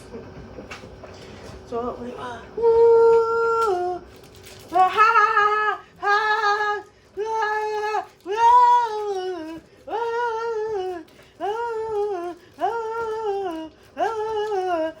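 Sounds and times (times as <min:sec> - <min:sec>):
person wailing: 0:04.7 - 0:15.0.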